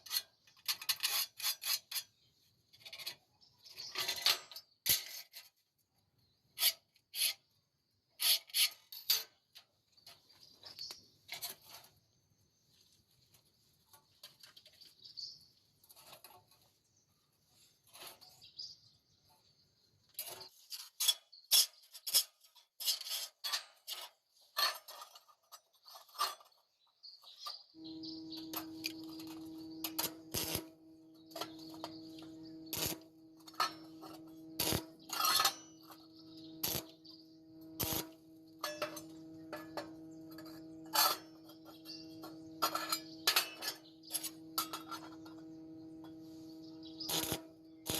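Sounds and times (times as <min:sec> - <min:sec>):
metallic clinks of steel tools: 0:27.4 - 0:47.9
steady machine hum: 0:27.8 - 0:47.9.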